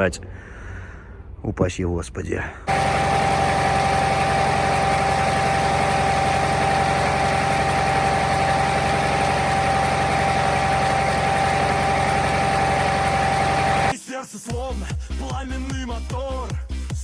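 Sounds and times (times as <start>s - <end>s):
truck diesel engine idling: 2.7s - 13.9s.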